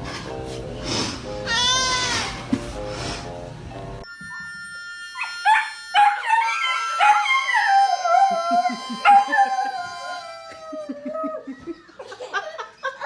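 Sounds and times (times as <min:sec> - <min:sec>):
animal howling: 0:05.2 - 0:11.7.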